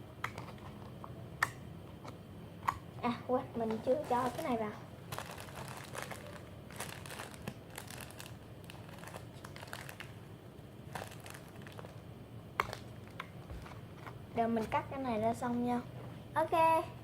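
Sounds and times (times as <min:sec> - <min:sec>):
plastic packaging crinkling: 0:03.6 - 0:14.8.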